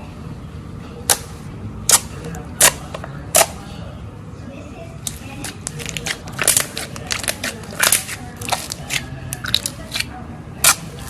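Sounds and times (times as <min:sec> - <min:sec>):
crunchy material being crushed: 0:05.0 - 0:11.0.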